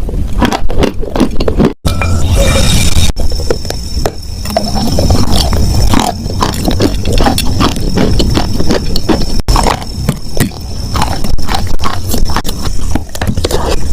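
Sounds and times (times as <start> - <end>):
chewing and crunching chalk: 0.0 - 1.8, 3.4 - 13.9
low mouth rumble: 4.4 - 13.9.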